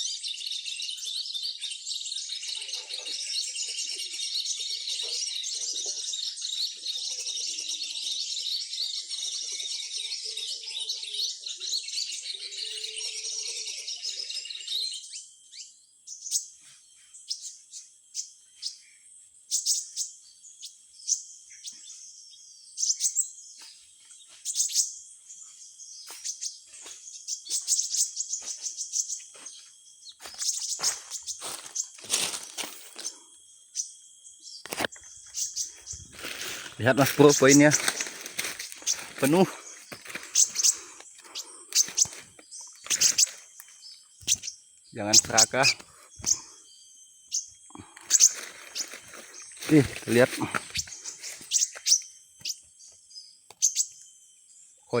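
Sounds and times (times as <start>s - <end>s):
small birds chirping: 0.0s - 55.0s
high insect buzz: 30.2s - 54.4s.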